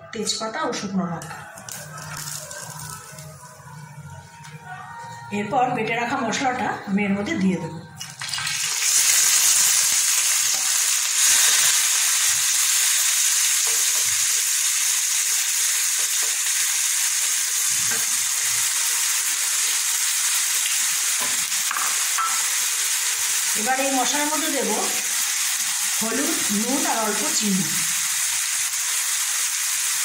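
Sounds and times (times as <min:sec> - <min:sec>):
spice paste sizzling in hot oil: 0:08.4 - 0:30.0.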